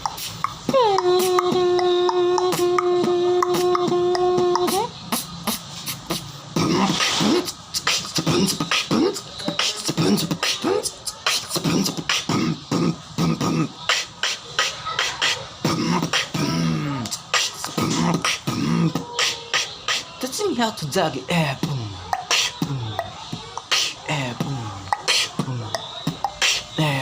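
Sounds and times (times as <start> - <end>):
held humming tone: 0.0 - 5.6
person beatboxing: 0.0 - 27.0.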